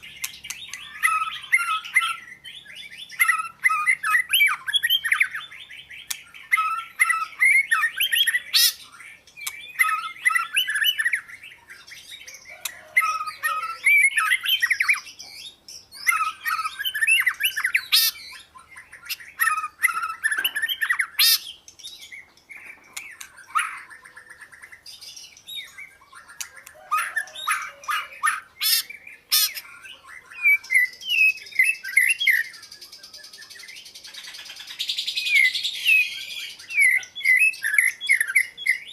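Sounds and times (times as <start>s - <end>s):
bird singing: 0.0s - 38.9s
sharp clicks: 9.4s - 9.6s.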